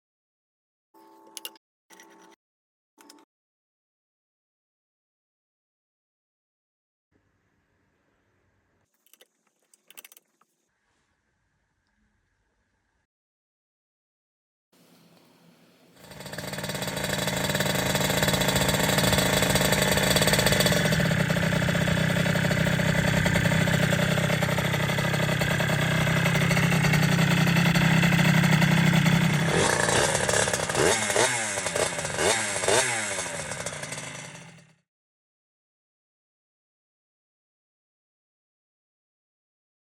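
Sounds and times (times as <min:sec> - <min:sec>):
two-stroke motorcycle engine revving: 0:16.0 - 0:34.8.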